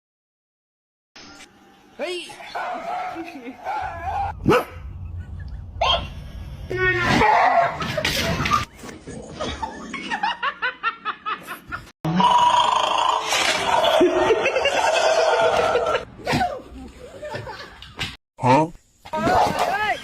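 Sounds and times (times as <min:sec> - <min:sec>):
people laughing: 0:07.7 - 0:11.9, 0:13.9 - 0:16.0, 0:17.0 - 0:18.0.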